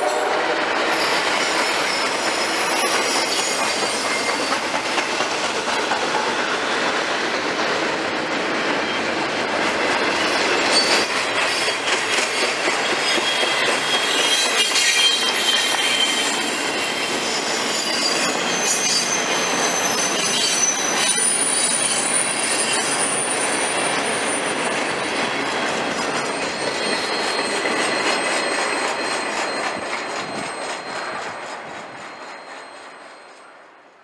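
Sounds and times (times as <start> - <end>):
wheels squealing: 0.0 - 5.2, 10.0 - 33.4
freight train rumbling on rails: 0.0 - 34.0.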